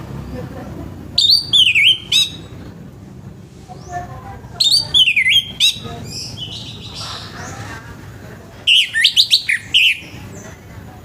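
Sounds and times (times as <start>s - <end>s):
faint bird notes: 1.2s - 2.7s, 8.7s - 10.7s.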